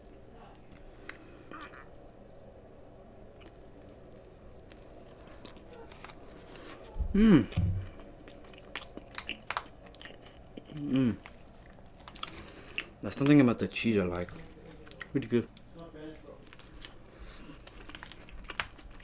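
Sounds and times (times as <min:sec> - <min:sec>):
close chewing with mouth smacks: 0:03.4 - 0:13.3, 0:16.5 - 0:19.0
person humming: 0:07.0 - 0:08.0, 0:10.8 - 0:11.2.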